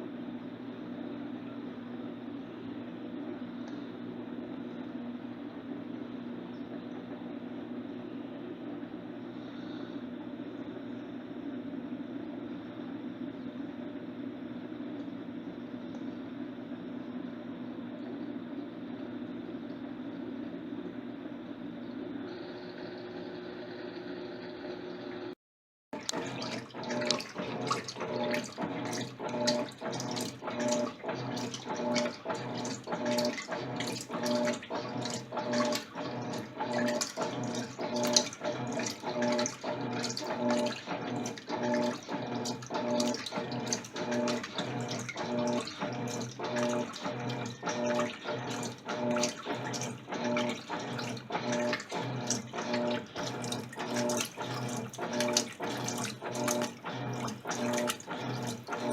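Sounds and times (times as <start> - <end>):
motor hum: 0.0 - 25.4, 26.0 - 58.9
water sloshing in washing machine: 21.8 - 58.9.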